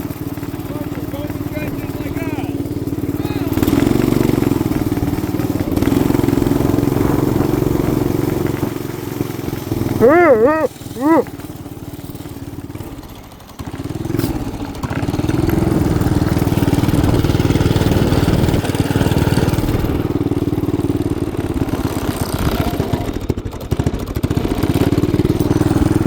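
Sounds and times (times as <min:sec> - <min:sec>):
small engine revving: 0:00.0 - 0:26.0
person speaking: 0:10.0 - 0:11.3.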